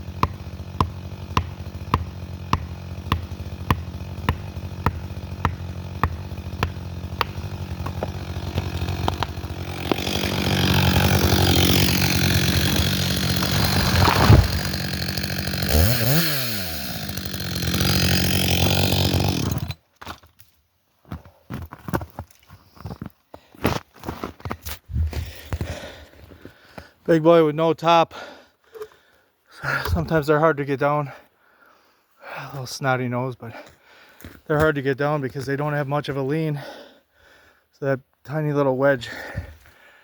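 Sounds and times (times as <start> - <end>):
chainsaw idling: 0.0 - 19.8
wedge being struck: 0.2 - 11.8
heavy crack of tree: 0.3 - 19.8
falling tree rushing and crackling: 4.0 - 19.7.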